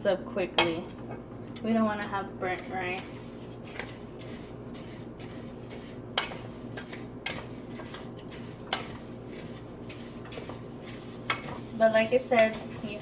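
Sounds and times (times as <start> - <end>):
steady background hum: 0.0 - 13.0
rice sizzling in oil: 2.8 - 13.0.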